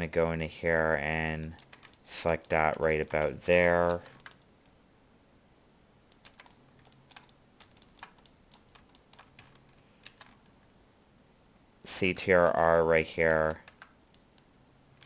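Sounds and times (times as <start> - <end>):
faint keyboard keystrokes: 1.4 - 4.8, 6.1 - 10.7, 13.4 - 15.0.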